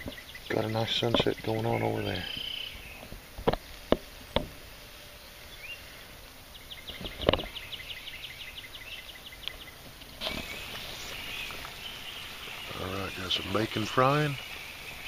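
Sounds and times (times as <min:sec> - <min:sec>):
bacon sizzling in a frying pan: 0:10.1 - 0:15.0.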